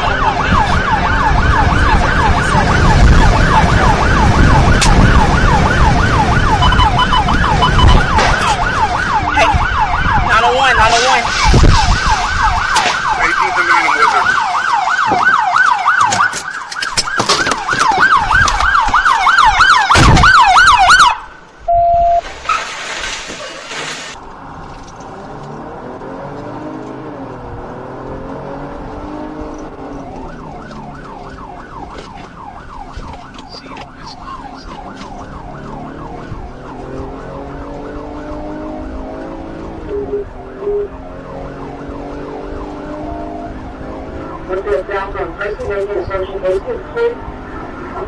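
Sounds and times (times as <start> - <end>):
police siren fast yelp: 0.0 - 21.3, 29.9 - 37.0, 37.6 - 47.3
engine and road noise: 0.0 - 48.0
short steady beep: 21.7 - 22.2.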